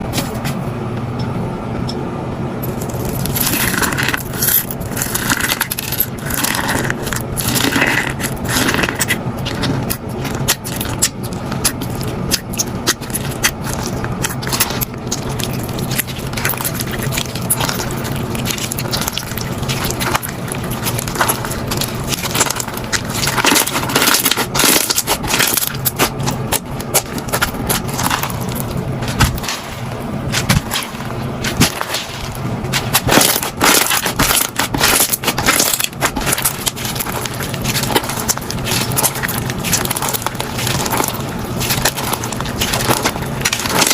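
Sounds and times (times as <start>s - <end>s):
steady low hum: 0.0s - 43.9s
bead slime crackling and popping: 2.8s - 43.9s.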